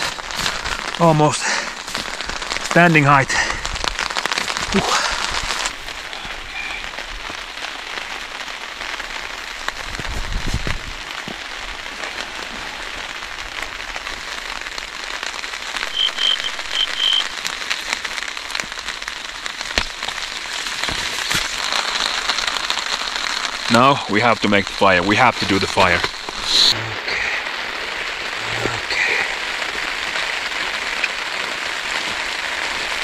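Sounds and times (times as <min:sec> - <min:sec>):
heavy rain on a tarp: 0:00.0 - 0:33.0
short high chirps: 0:15.8 - 0:17.3.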